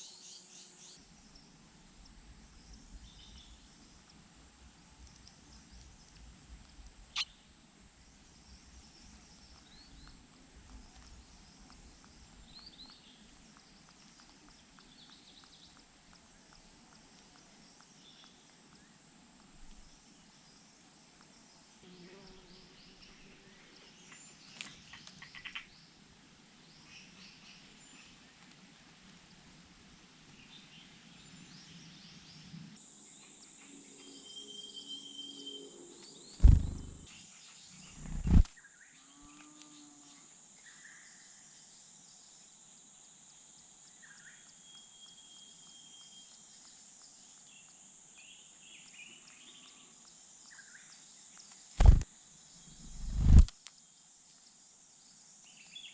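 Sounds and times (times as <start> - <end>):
small birds chirping: 5.0 - 25.9, 36.0 - 38.8, 43.8 - 55.9
loud thumps: 36.4 - 37.0, 51.8 - 52.0.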